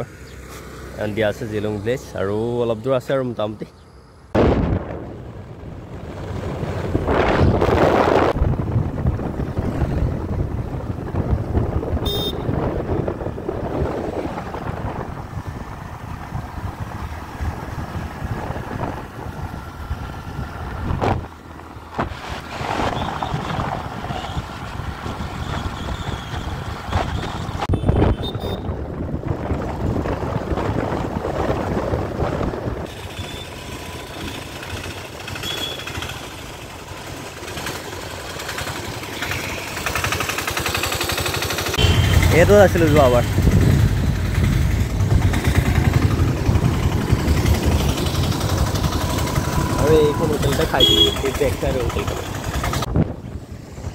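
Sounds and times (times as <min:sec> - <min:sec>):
vehicle road rumble: 0:00.0 - 0:53.9
wind buffeting microphone: 0:04.4 - 0:32.9, 0:41.8 - 0:50.8, 0:51.5 - 0:53.9.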